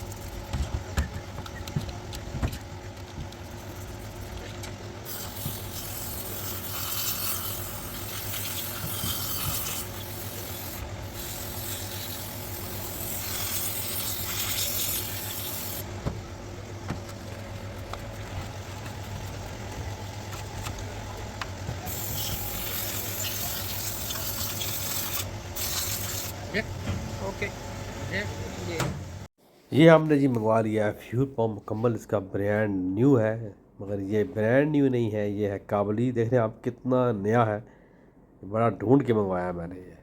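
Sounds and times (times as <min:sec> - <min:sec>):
steady low hum: 0:00.0 - 0:29.3
hissing spray: 0:05.1 - 0:15.8, 0:21.8 - 0:26.3.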